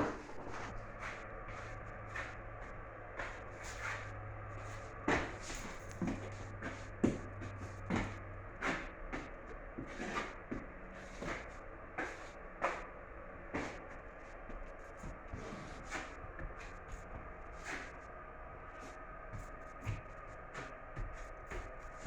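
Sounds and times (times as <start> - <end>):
hand sanding scraping strokes: 15.3 - 18.0.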